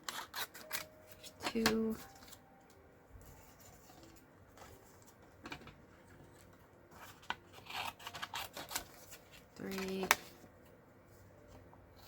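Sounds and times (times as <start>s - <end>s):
faint paper rustle: 3.2s - 12.0s.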